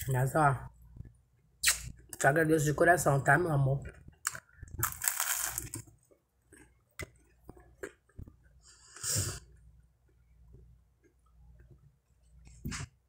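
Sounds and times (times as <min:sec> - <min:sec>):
biting bread roll: 0:04.2 - 0:05.9.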